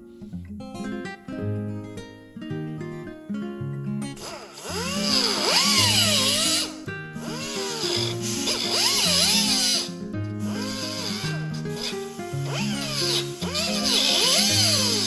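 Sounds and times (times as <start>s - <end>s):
guitar music with bass line: 0.0s - 15.0s
power tool cutting sheet metal: 4.2s - 15.0s.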